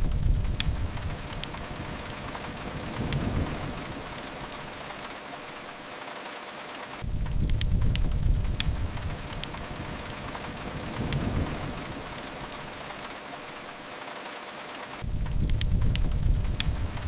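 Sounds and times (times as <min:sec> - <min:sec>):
deep low rumble: 0:00.0 - 0:01.9, 0:07.0 - 0:10.0, 0:15.0 - 0:17.0
rain hiss: 0:00.0 - 0:17.0
wood fire crackling: 0:00.0 - 0:17.0.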